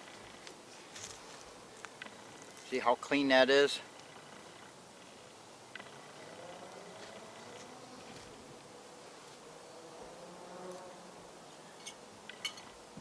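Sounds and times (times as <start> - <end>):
flying insect buzzing: 0.0 - 2.7, 3.8 - 13.0.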